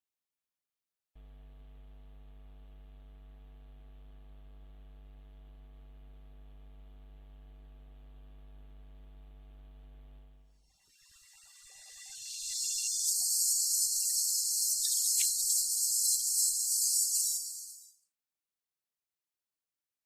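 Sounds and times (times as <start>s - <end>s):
low electrical hum: 1.2s - 10.5s.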